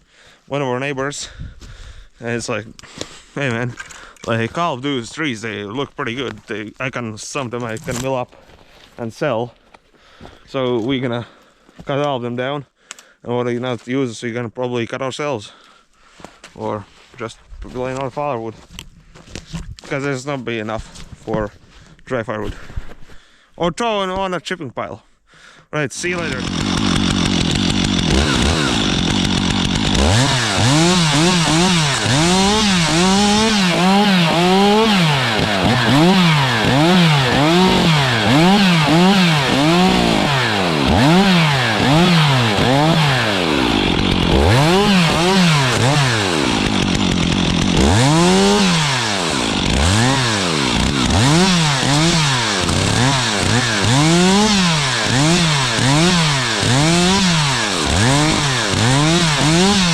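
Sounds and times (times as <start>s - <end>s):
chainsaw revving while cutting: 26.0s - 59.9s.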